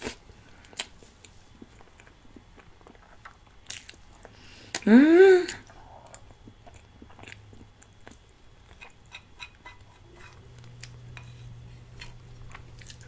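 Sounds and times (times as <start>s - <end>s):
soft chewing: 0.0s - 4.8s, 5.5s - 13.0s.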